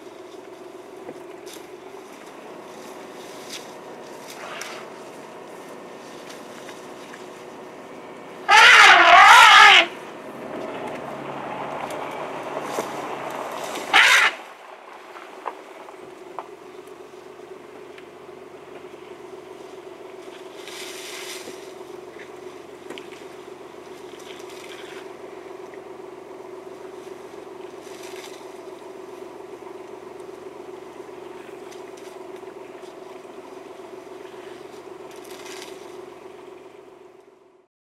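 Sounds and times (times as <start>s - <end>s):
elephants stripping leafy branches: 0.0s - 7.6s, 8.5s - 15.8s, 20.2s - 25.2s, 26.7s - 29.2s, 31.2s - 36.4s
car engine idling: 0.0s - 37.7s.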